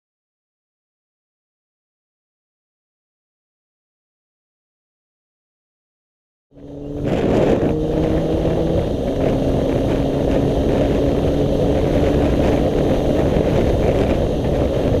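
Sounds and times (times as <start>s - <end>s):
motorcycle engine running: 6.5s - 15.0s
wind buffeting microphone: 6.6s - 15.0s.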